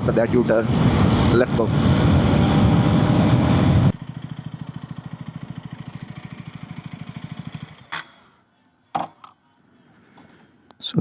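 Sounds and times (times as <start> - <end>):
riding wind and road noise: 0.0 - 8.2
motorcycle engine idling: 2.0 - 8.2.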